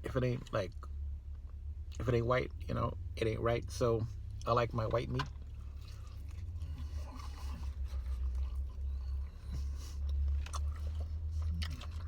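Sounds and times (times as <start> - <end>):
person chewing food: 5.3 - 12.0.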